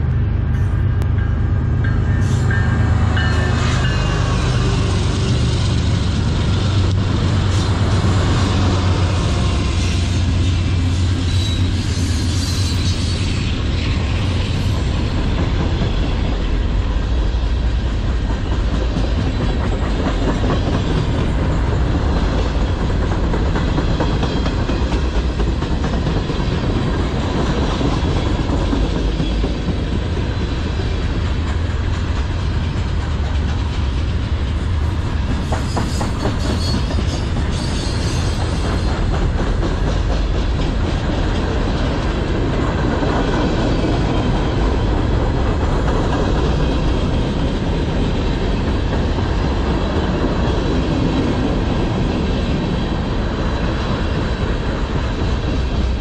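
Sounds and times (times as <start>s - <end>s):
diesel locomotive engines droning: 0.0s - 56.0s
freight cars rumbling: 0.0s - 56.0s
wheels clacking on rails: 0.1s - 56.0s.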